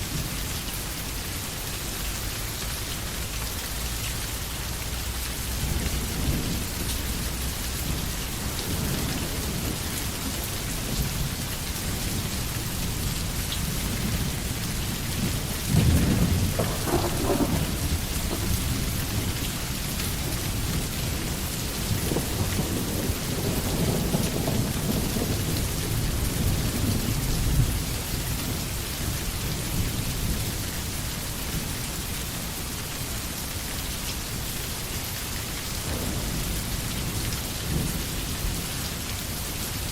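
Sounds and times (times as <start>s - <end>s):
heavy rain falling: 0.0s - 39.9s
thunder rumbling: 5.5s - 28.7s, 35.8s - 39.4s.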